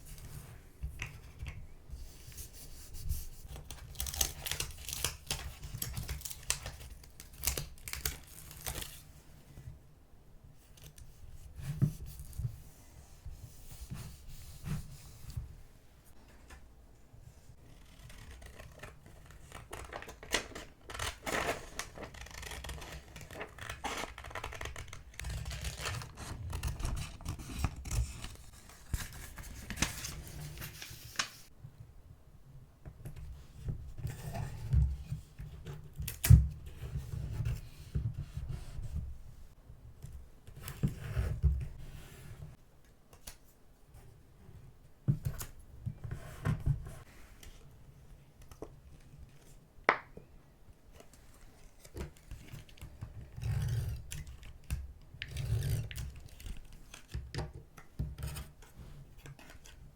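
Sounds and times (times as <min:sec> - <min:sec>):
paper rustling and scraping: 0:17.9 - 0:31.5.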